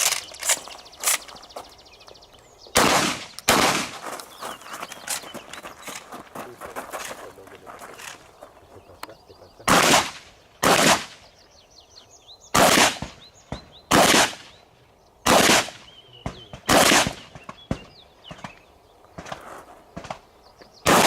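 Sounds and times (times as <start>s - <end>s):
shotgun shots with echo: 2.7s - 4.1s, 9.6s - 11.2s, 12.5s - 14.5s, 15.2s - 18.6s.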